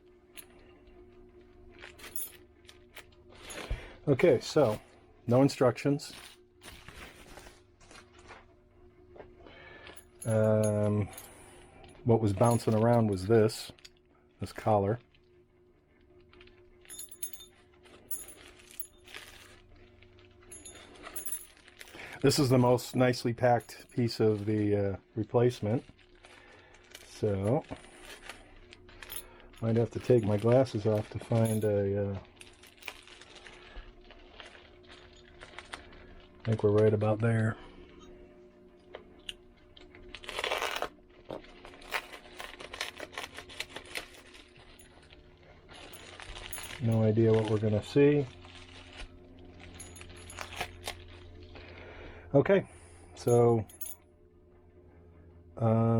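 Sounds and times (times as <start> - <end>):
faint steady hum: 0.0 - 55.9
small metal parts clinking: 1.8 - 3.7, 9.8 - 11.4, 12.3 - 13.9, 16.8 - 19.6, 20.4 - 24.3, 26.8 - 33.5, 45.7 - 47.9, 49.6 - 51.1, 53.2 - 54.0
packaging rustling: 6.1 - 8.4, 25.6 - 36.8, 40.0 - 51.2
plastic packaging tearing: 32.2 - 36.8, 40.0 - 45.1.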